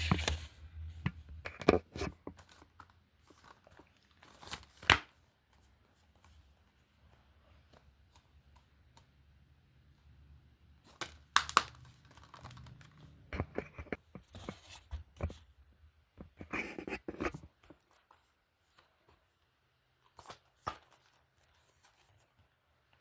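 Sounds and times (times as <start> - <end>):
crinkly rustling: 11.6 - 14.9.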